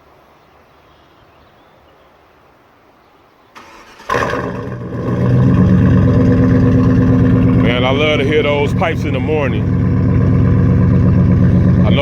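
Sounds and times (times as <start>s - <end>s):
engine cranking and idling loudly: 3.6s - 12.0s.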